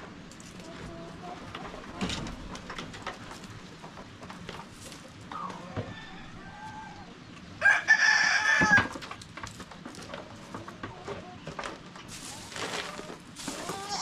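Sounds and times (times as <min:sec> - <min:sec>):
chicken calls: 0:05.2 - 0:09.0, 0:12.6 - 0:14.0
rooster crowing: 0:05.6 - 0:08.9.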